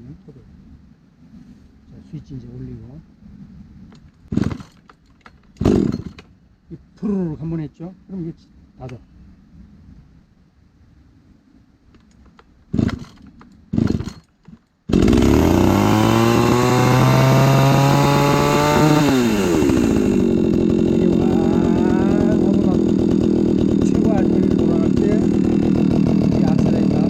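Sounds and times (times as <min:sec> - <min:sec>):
chainsaw starter cord pulls: 0:03.9 - 0:06.3, 0:12.0 - 0:27.0
chainsaw engine running: 0:04.3 - 0:04.8, 0:05.6 - 0:06.2, 0:12.8 - 0:14.2, 0:14.9 - 0:27.0.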